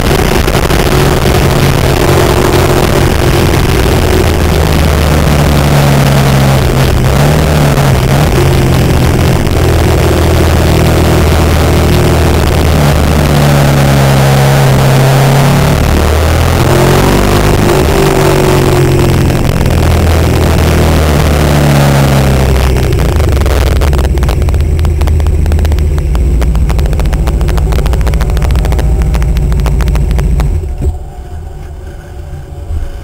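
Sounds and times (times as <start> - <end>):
motorcycle engine slowing: 0.0 - 33.0.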